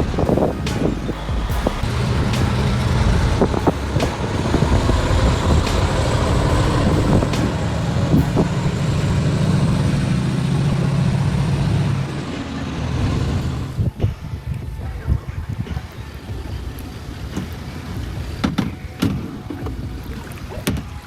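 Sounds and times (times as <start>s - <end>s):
heavy truck engine droning: 0.0s - 14.1s.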